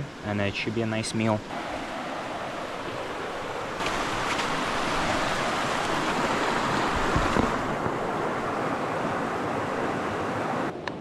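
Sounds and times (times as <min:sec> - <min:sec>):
river water rushing: 0:01.4 - 0:10.7.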